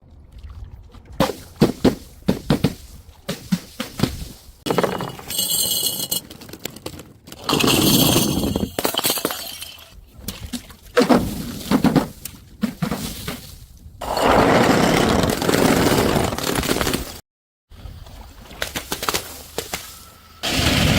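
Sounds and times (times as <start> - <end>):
glass bottles clinking down stairs: 4.7 - 9.9
glass breaking: 7.5 - 9.9.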